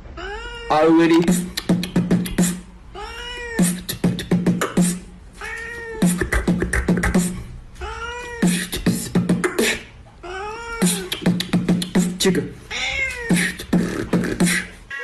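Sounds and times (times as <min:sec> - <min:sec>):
cat meowing in a loop: 0:00.2 - 0:01.3, 0:03.0 - 0:03.8, 0:07.8 - 0:08.8, 0:10.2 - 0:11.2, 0:12.7 - 0:13.6.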